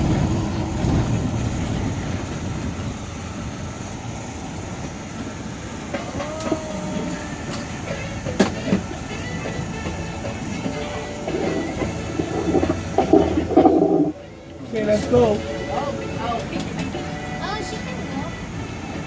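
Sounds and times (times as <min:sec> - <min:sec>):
van road rumble: 0:00.0 - 0:19.0.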